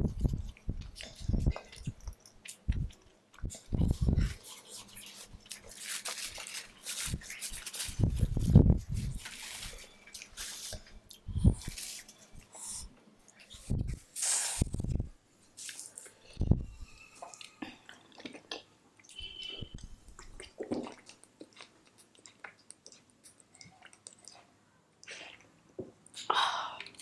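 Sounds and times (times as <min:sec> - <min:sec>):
chewing and wet smacking: 0:17.2 - 0:27.0.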